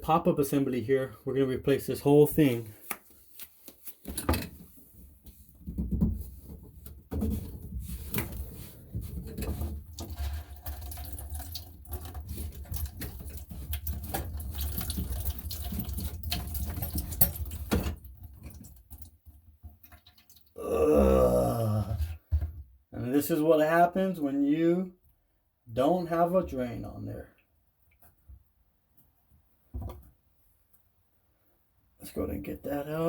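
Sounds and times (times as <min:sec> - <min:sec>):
water splashing into bucket: 0:09.8 - 0:19.2.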